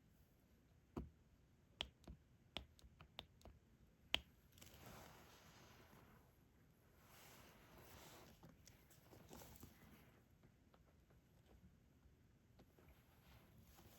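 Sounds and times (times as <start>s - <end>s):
soft rustle: 4.5s - 11.6s, 12.6s - 13.9s.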